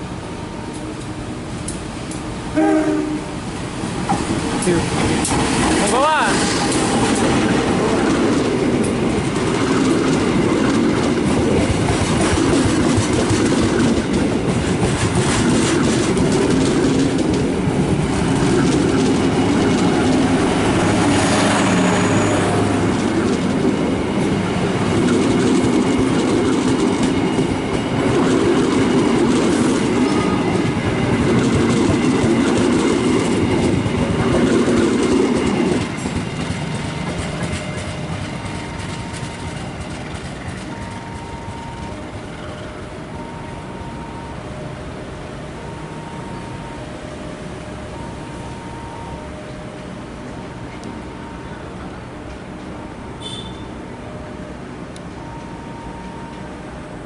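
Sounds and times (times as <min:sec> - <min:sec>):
train wheels clattering: 0:04.0 - 0:42.7.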